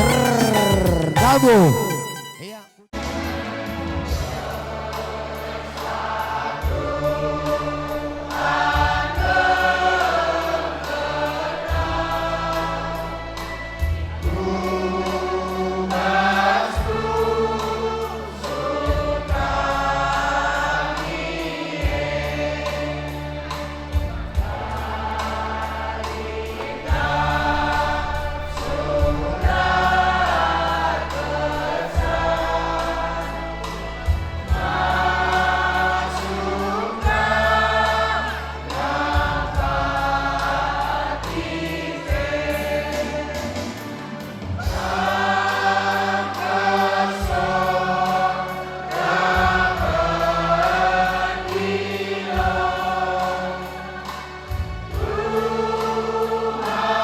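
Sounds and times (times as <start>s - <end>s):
choir singing: 0.0s - 2.7s, 24.4s - 44.0s, 44.6s - 57.0s
musical accompaniment: 0.0s - 2.9s.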